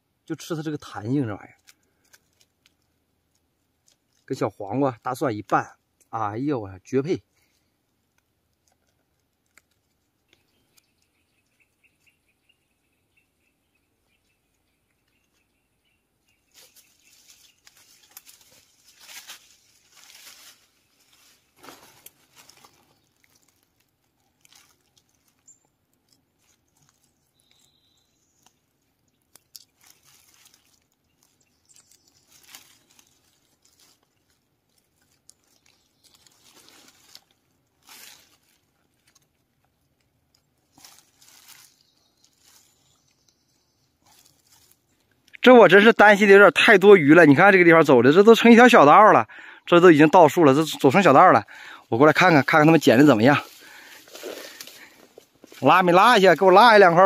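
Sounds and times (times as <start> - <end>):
dry leaves crunching underfoot: 16.4 - 45.2, 49.9 - 57.0.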